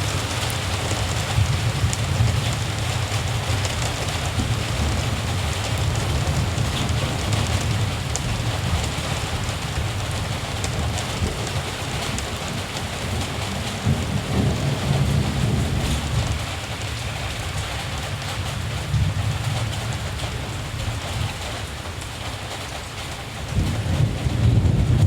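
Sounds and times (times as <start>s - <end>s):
distant thunder rumbling: 0.0s - 21.8s, 23.4s - 25.0s
steady rain: 0.0s - 25.0s.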